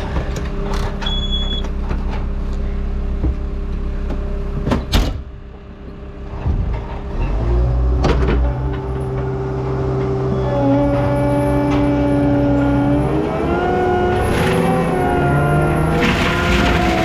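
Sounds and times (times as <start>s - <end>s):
skid steer engine running: 5.3s - 17.0s.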